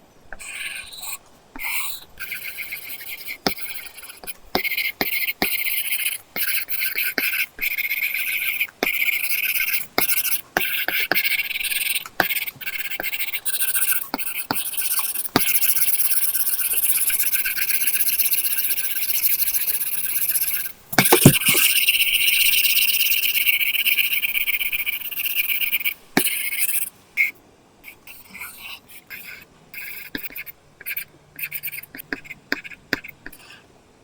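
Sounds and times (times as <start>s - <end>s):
stylus scratching on screen: 0.4s - 21.9s, 27.9s - 33.5s
stylus tapping: 20.9s - 21.9s.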